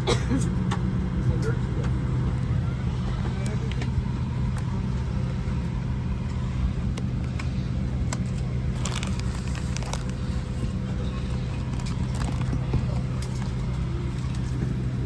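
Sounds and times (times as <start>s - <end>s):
airplane cabin hum: 0.0s - 15.0s
small clicks and rustles: 8.1s - 10.5s, 11.2s - 14.7s.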